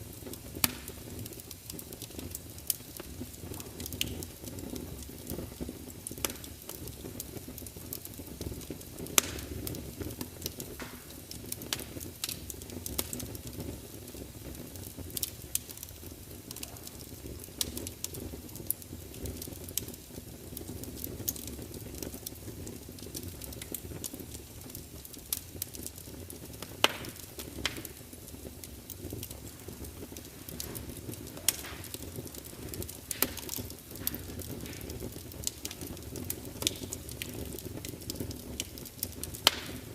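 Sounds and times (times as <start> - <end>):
wood fire crackling and hissing: 0.0 - 39.9
logs popping: 0.4 - 2.1, 9.1 - 13.2, 26.5 - 39.9.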